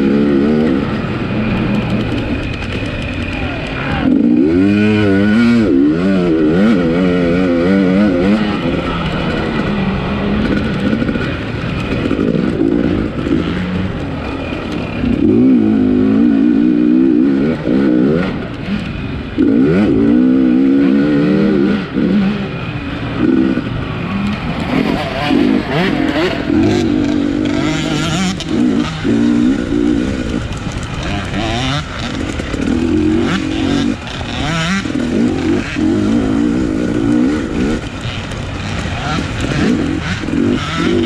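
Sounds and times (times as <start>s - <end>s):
motorcycle engine revving hard: 0.0s - 41.0s.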